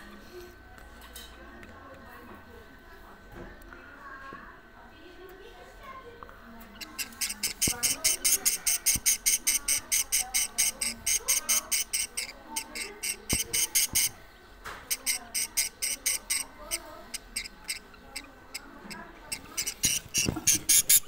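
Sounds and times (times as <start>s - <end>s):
warbling chatter: 0.0s - 21.0s
rapid high-pitched budgerigar chirps: 6.6s - 14.2s, 14.9s - 21.0s.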